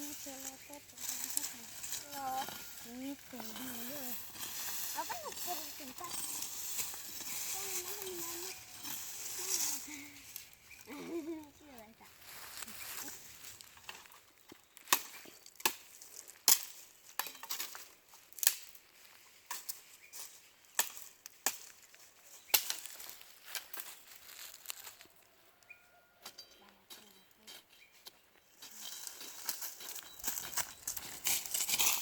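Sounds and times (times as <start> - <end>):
sticks and twigs snapping: 13.4 - 18.8, 19.5 - 25.0.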